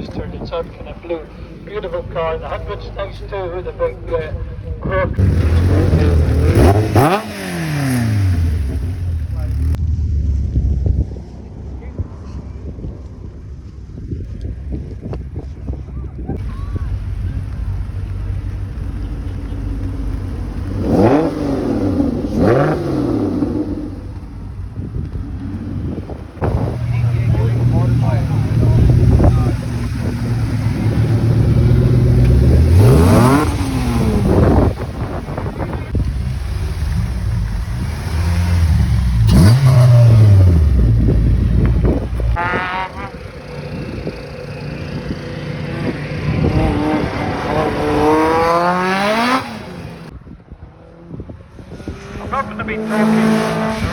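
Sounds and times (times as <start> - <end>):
car engine idling and revving: 0.0 - 53.9.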